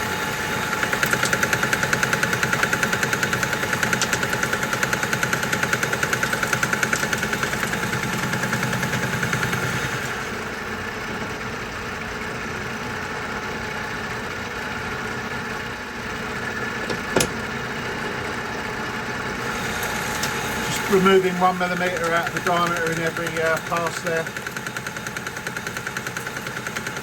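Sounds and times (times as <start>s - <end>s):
metal lathe boring steel: 18.8s - 27.0s.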